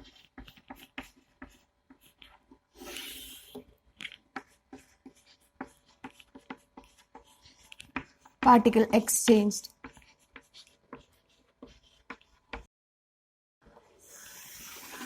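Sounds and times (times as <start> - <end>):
writing tool scratching: 0.0 - 8.6, 9.7 - 12.7.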